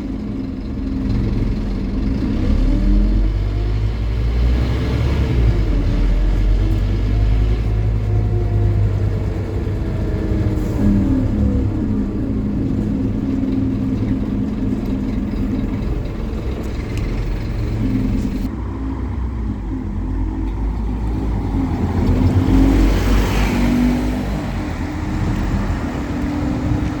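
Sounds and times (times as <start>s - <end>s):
bus diesel engine running: 0.0s - 27.0s.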